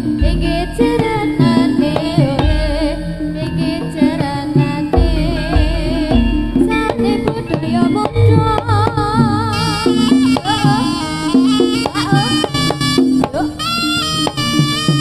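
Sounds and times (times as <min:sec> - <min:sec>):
deep bass notes: 0:00.0 - 0:13.3
hand drums beating: 0:00.0 - 0:15.0
wavering melody line: 0:00.0 - 0:15.0.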